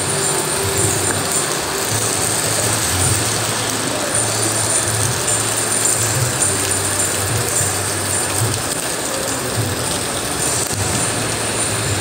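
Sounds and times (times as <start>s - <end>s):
rain on metal roof: 0.0s - 12.0s.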